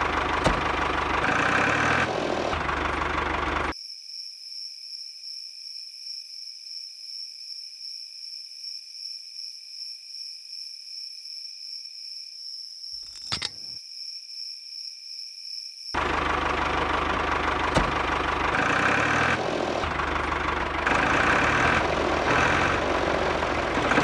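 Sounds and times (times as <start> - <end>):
insects chirring: 3.7 - 16.0.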